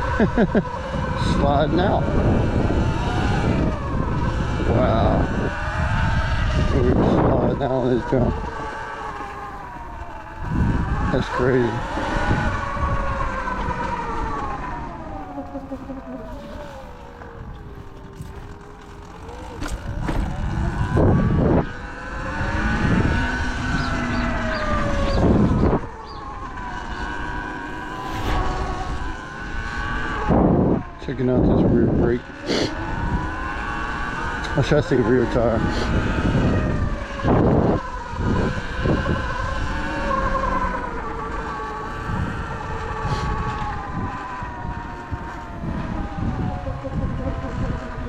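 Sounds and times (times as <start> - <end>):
electric dirt bike motor whining: 0.0 - 48.0
wind buffeting microphone: 0.0 - 48.0
loud rush of noise: 1.0 - 32.8.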